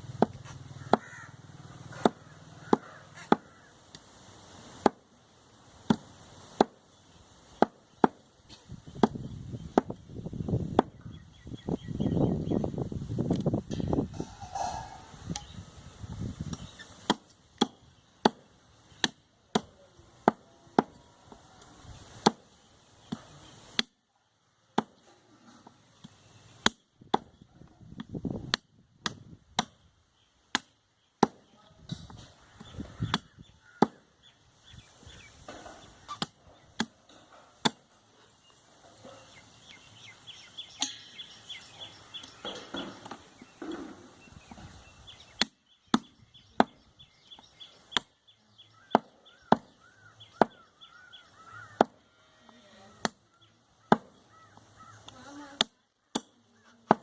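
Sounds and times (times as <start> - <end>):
cleaver chopping meat on wood: 1.9 - 3.5, 9.0 - 10.0, 17.0 - 21.0, 22.2 - 22.4, 26.6 - 27.4, 30.5 - 31.5, 32.6 - 34.0, 45.4 - 46.8, 48.8 - 50.7, 51.7 - 52.0, 53.8 - 54.2, 55.6 - 57.0.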